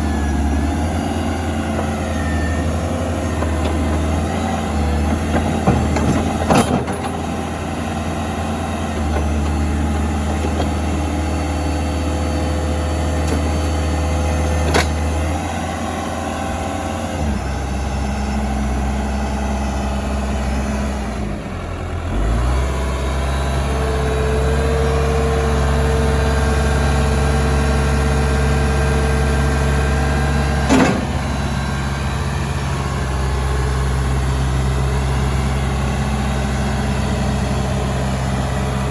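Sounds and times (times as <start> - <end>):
diesel engine running: 0.0 - 38.9
sharp clunks: 30.6 - 31.7.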